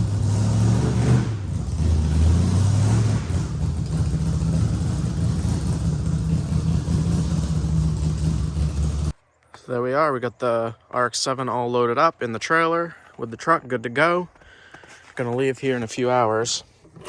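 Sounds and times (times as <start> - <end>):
car engine running: 0.0 - 9.1.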